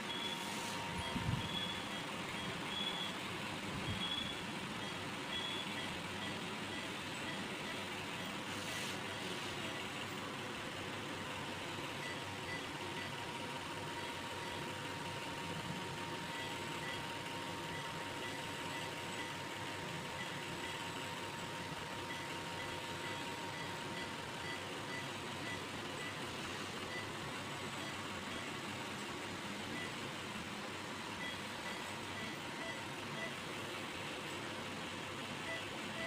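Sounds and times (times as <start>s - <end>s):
ventilator hiss and hum: 0.0s - 36.0s
short beeps: 0.1s - 3.2s.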